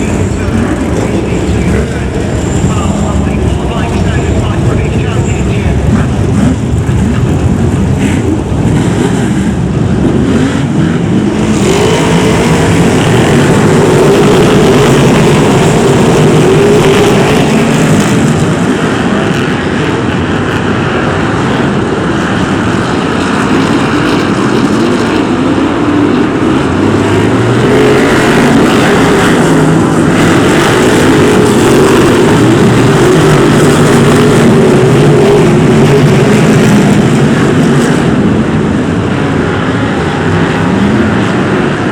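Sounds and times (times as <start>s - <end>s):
racing car engines: 0.0s - 41.9s.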